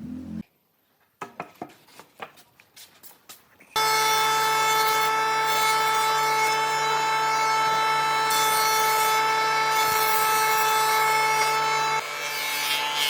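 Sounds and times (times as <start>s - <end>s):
power tool whining on wood: 3.8s - 13.0s.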